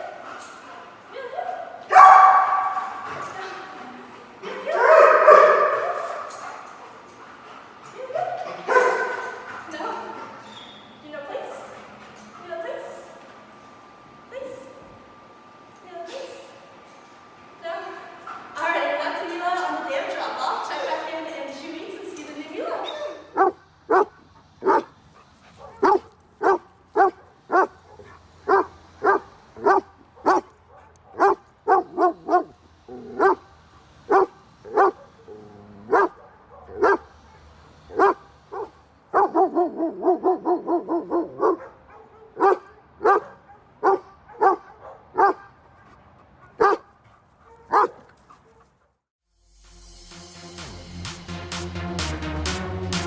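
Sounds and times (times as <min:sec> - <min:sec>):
dog barking: 0:01.9 - 0:03.2, 0:04.5 - 0:06.6, 0:08.4 - 0:10.0, 0:22.8 - 0:24.9, 0:25.6 - 0:33.4, 0:34.1 - 0:45.6, 0:46.5 - 0:48.7.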